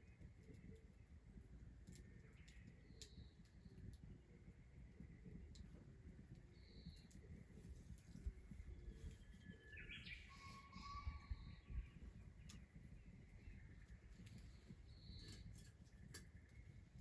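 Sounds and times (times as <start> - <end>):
faint bird calls: 9.0 - 12.8.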